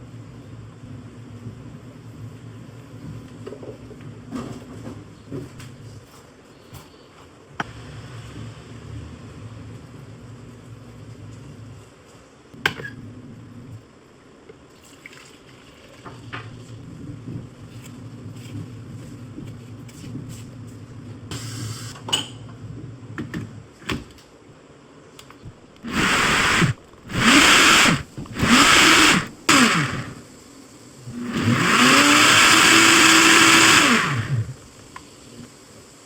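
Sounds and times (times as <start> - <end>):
blender motor pulsing: 25.8 - 30.3, 31.1 - 34.8.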